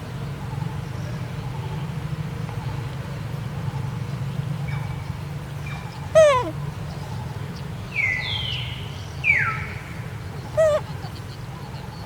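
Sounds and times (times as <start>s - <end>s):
macaque squealing: 6.2s - 6.5s, 10.6s - 10.8s
macaque calling: 6.2s - 6.6s, 10.5s - 11.2s.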